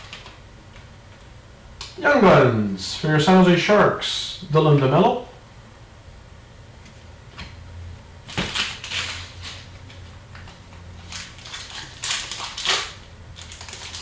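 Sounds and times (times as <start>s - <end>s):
card packs crinkling and rustling: 8.3s - 14.0s.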